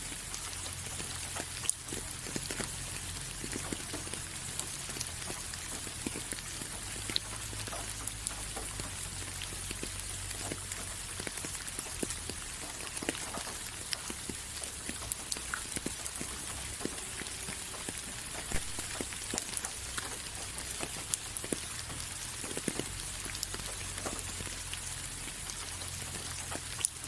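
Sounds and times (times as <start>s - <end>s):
raindrops pattering on a surface: 0.0s - 27.0s
steady rainfall hiss: 0.0s - 27.0s.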